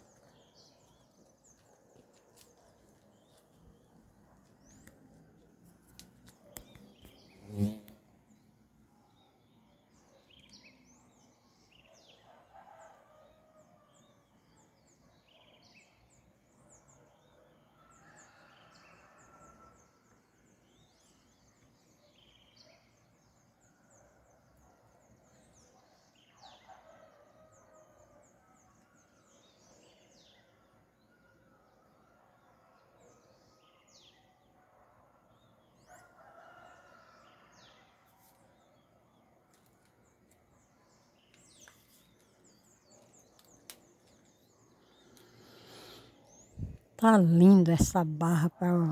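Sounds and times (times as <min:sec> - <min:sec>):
small birds chirping: 0:00.0 - 0:08.4, 0:39.7 - 0:48.9.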